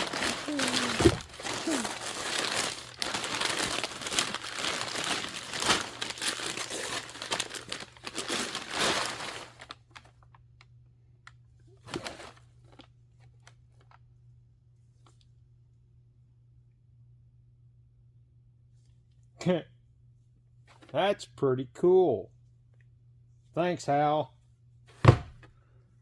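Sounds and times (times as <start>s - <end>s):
wrapping paper tearing and crumpling: 0.0s - 10.2s, 11.8s - 12.8s.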